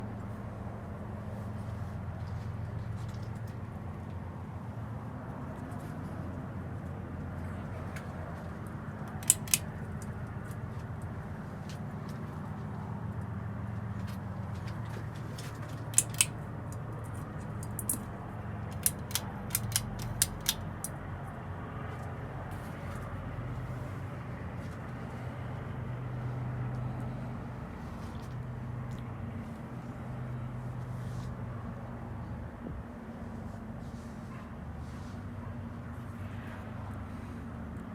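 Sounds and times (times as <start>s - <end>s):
ceiling fan motor hum: 0.0s - 37.9s
sharp clicks: 9.1s - 10.1s, 15.9s - 16.8s, 17.5s - 18.1s, 18.7s - 21.0s.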